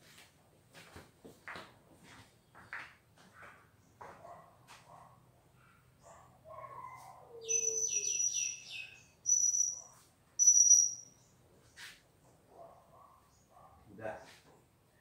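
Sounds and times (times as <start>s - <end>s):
bird high whistled notes: 7.4s - 11.2s
bird chirping: 7.4s - 11.4s.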